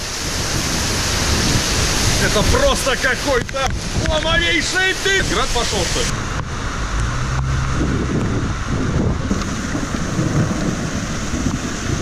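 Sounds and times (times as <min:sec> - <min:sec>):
wind buffeting microphone: 0:00.0 - 0:04.6, 0:06.0 - 0:12.0
heavy rain hissing: 0:00.0 - 0:12.0.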